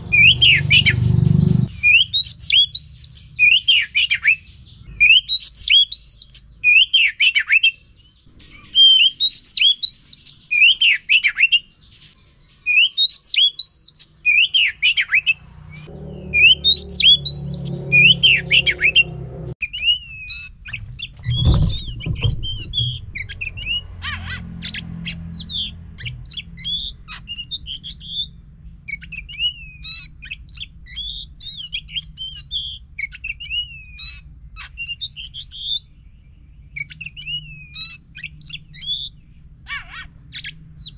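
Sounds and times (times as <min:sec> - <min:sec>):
bird singing whistled phrases: 0:00.1 - 0:01.0, 0:01.7 - 0:07.8, 0:08.4 - 0:11.7, 0:12.6 - 0:19.0, 0:28.9 - 0:35.8
low hum: 0:15.5 - 0:19.6, 0:20.7 - 0:26.6
dull thump: 0:20.8 - 0:23.6.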